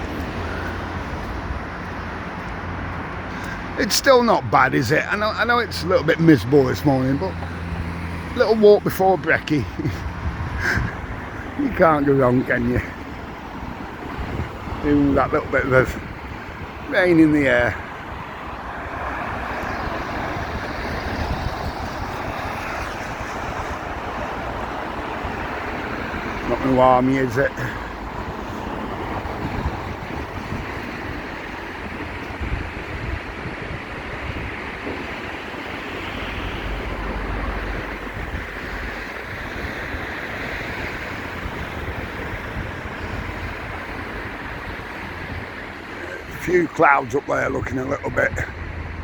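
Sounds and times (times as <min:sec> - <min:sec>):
outdoor rushing noise: 0:00.0 - 0:49.0
wind buffeting microphone: 0:00.0 - 0:49.0.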